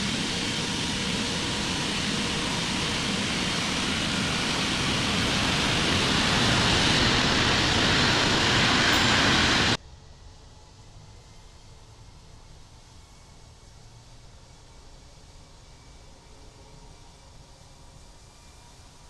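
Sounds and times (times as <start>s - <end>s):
jet engines running: 0.0s - 9.8s.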